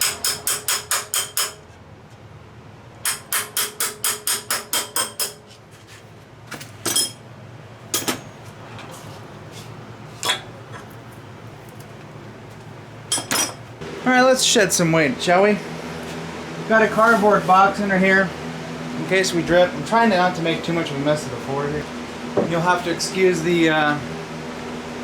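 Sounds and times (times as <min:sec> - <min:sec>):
shop fan humming: 0:00.0 - 0:25.0.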